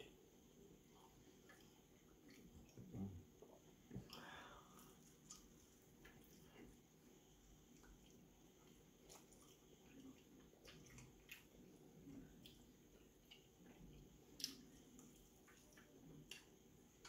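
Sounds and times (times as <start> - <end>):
wet chewing and lip-smacking: 7.7 - 17.0.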